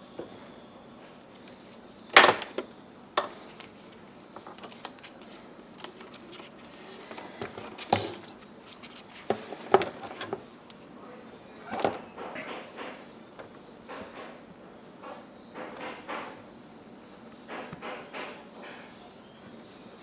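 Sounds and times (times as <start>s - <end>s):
hard plastic parts clicking and knocking: 2.2s - 3.4s.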